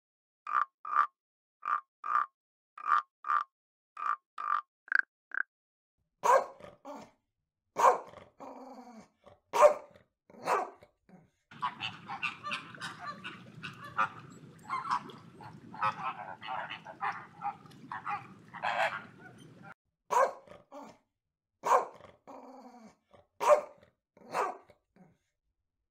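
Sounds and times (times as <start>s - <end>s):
frog croaking: 0.5s - 5.5s, 11.5s - 19.8s
dog barking: 6.2s - 7.1s, 7.8s - 8.2s, 9.5s - 10.8s, 11.6s - 20.9s, 21.6s - 22.0s, 23.4s - 24.7s
flamingos honking: 11.5s - 19.8s.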